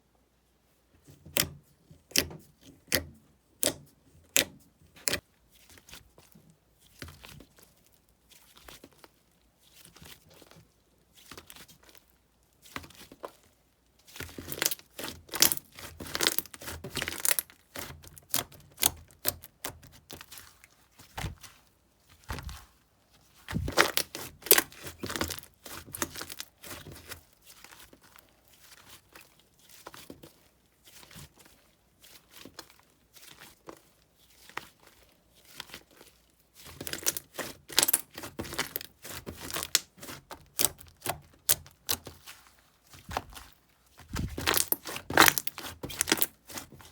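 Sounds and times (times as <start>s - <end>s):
slime squishing: 1.0s - 46.9s
crackly slime clicking: 2.1s - 5.2s, 14.3s - 20.3s.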